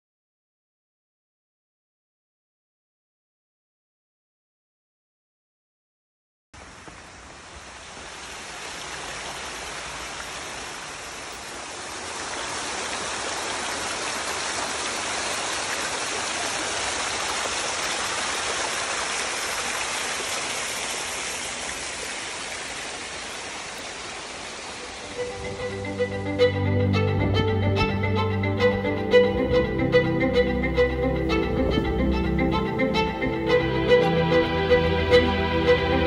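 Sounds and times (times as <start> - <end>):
strong wind rushing: 31.1 - 33.1.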